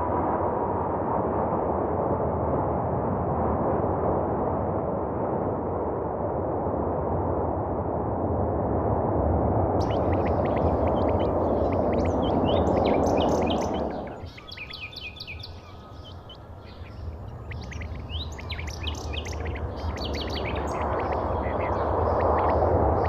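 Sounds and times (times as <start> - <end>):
loud rushing roar: 9.8 - 23.0
small birds chirping: 9.8 - 23.0.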